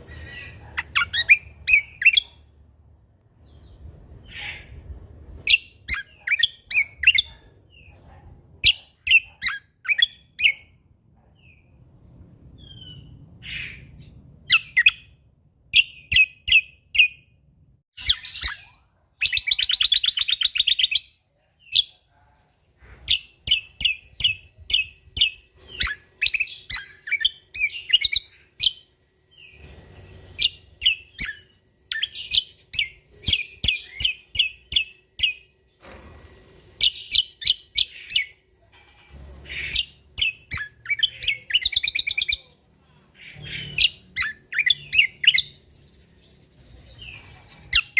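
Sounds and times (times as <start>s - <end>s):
bird trill: 0.0s - 2.4s, 5.5s - 7.9s, 8.6s - 10.8s, 23.1s - 35.6s, 36.8s - 38.4s, 39.4s - 42.5s, 43.2s - 47.9s
bird chirps and whistles: 0.2s - 2.3s, 23.1s - 28.8s, 30.3s - 35.4s, 36.8s - 38.4s, 39.6s - 42.4s, 43.3s - 45.6s.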